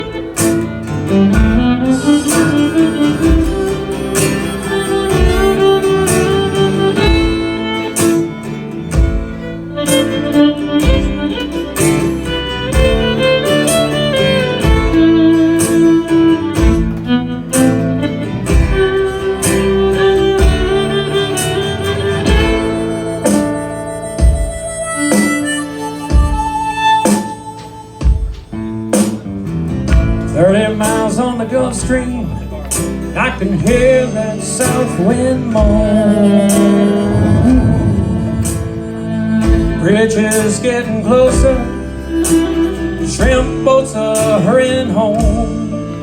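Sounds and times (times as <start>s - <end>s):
fiddle melody: 0.0s - 46.0s
guitar: 0.0s - 46.0s
steady drum beat: 1.2s - 23.6s, 24.2s - 30.4s, 35.6s - 40.6s, 45.2s - 45.8s.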